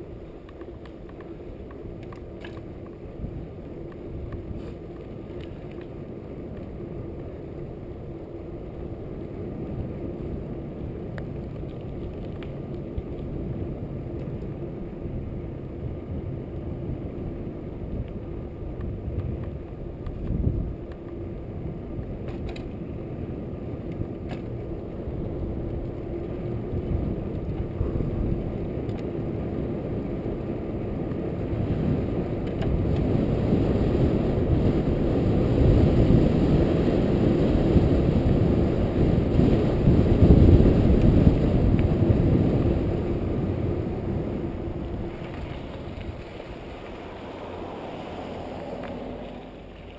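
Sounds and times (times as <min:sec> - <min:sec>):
bike clicks and rattles: 0:00.1 - 0:08.9, 0:10.1 - 0:14.7, 0:17.8 - 0:34.9
tyre and wind rush: 0:24.7 - 0:49.9.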